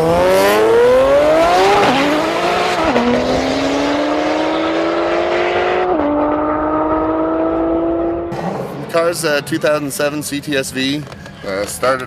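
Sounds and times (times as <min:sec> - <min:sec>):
car engine accelerating: 0:00.0 - 0:09.5.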